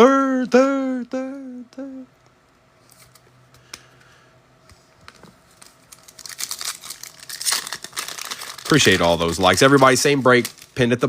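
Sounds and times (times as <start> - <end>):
card pack wrapper crinkling: 5.1 - 11.0.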